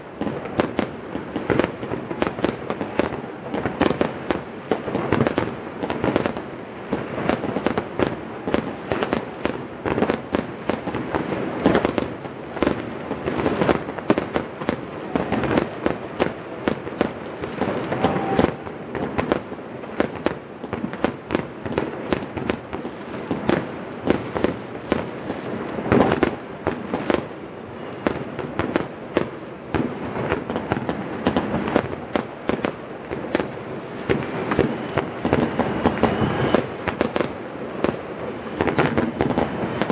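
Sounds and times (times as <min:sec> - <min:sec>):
fireworks and firecrackers banging: 0:00.0 - 0:39.9.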